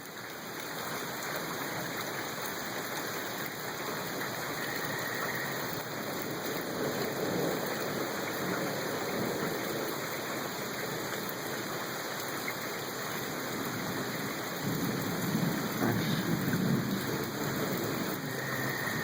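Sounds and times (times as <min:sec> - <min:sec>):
rain falling: 0:00.0 - 0:19.0
thunder rumbling: 0:14.6 - 0:19.0.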